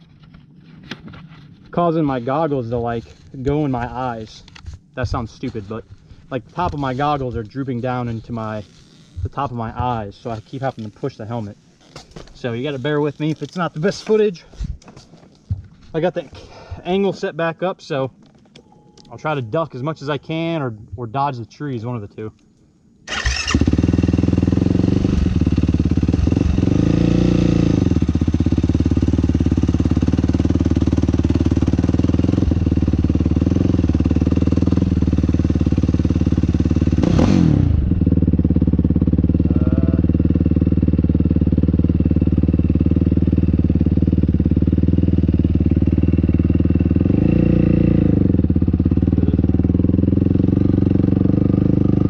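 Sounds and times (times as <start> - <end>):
quad engine revving: 23.1 - 52.0.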